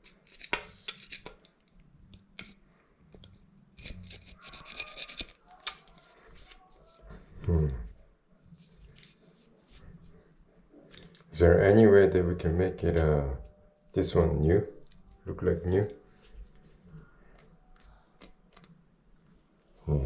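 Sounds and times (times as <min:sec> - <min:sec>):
scraping and rubbing faucet parts: 0:00.0 - 0:01.4, 0:03.8 - 0:07.5, 0:12.8 - 0:17.4
short low voice: 0:07.4 - 0:07.9.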